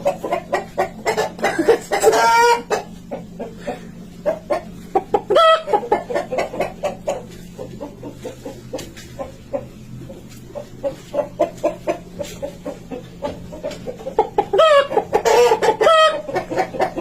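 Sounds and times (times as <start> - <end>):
chickens clucking: 0.0 - 17.0
steady low hum: 0.0 - 17.0.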